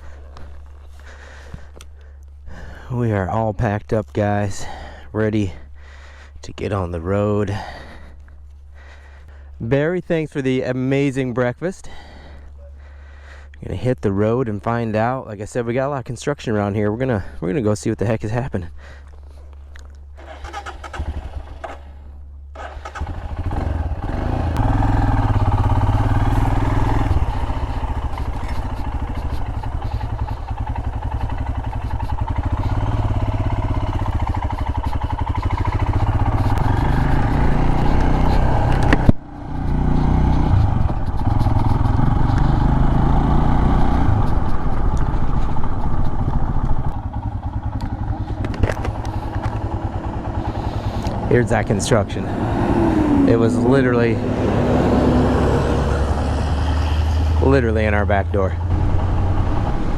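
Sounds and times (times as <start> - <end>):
motorcycle engine running: 19.2 - 59.9.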